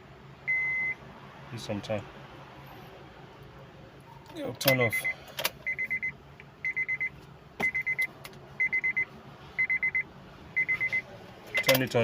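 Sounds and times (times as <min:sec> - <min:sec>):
car warning beeps: 0:00.4 - 0:01.0, 0:04.1 - 0:11.8.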